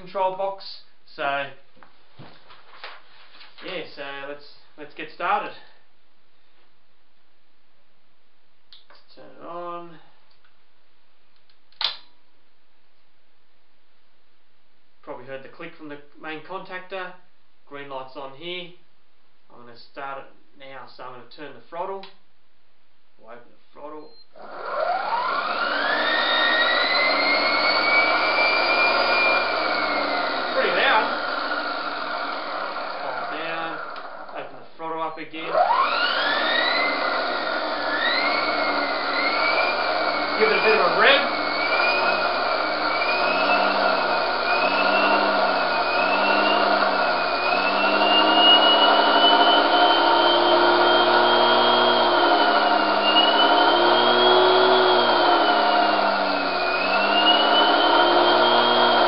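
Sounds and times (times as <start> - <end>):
electric motor whine: 24.4 - 34.3, 35.5 - 59.0.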